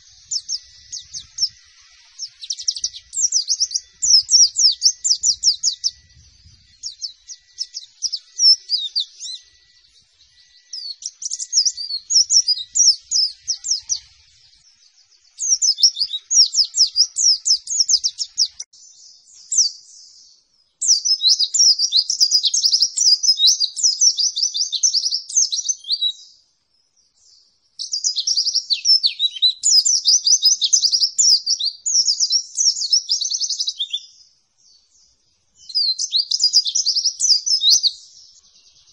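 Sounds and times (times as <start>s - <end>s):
bird singing rapid high notes: 0.0s - 18.7s.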